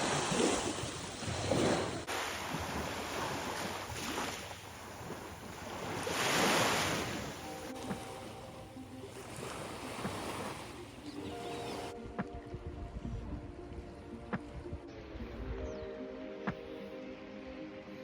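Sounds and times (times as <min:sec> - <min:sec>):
ocean waves washing: 0:00.0 - 0:15.3
wind on microphone: 0:09.2 - 0:15.9.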